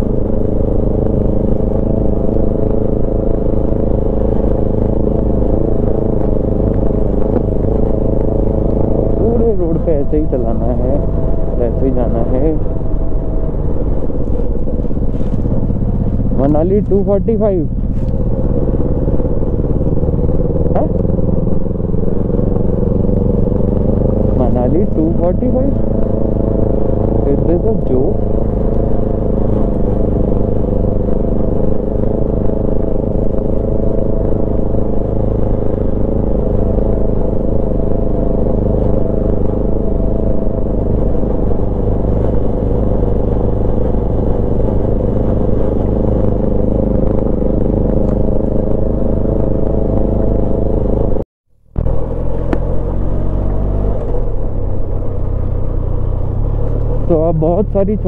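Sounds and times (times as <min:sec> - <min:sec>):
low rumble: 0:00.0 - 0:58.0
motorcycle engine running: 0:00.0 - 0:58.0.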